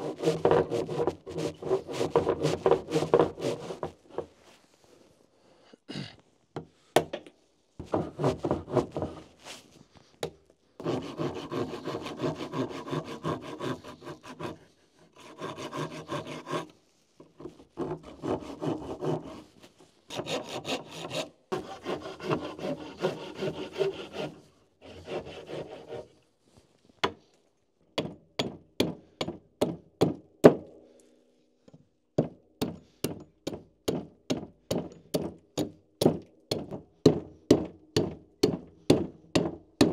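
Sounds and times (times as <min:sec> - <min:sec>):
rapid scraping on wood: 0:00.0 - 0:04.4, 0:07.8 - 0:09.7, 0:10.8 - 0:16.7, 0:17.3 - 0:26.1.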